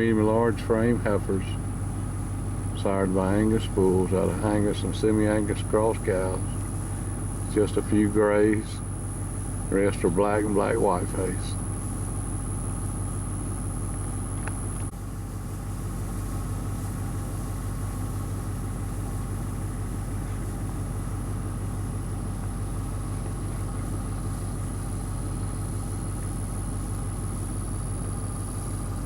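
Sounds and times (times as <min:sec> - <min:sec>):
faint high whine: 0:00.0 - 0:29.0
low mechanical rumble: 0:00.0 - 0:29.0.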